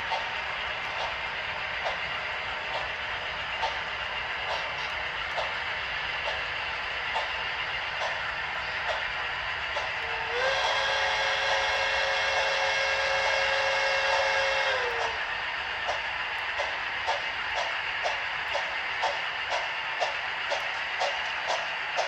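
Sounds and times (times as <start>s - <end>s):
model steam locomotive hissing: 0.0s - 22.0s
steam whistle chord: 10.0s - 15.2s
sharp clicks: 15.8s - 22.0s.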